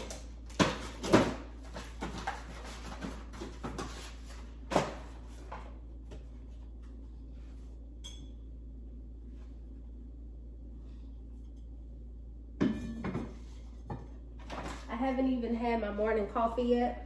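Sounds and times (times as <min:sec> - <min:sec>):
kitchen items knocking and clattering: 0:00.0 - 0:05.7, 0:12.6 - 0:15.0
low steady hum: 0:00.0 - 0:17.0.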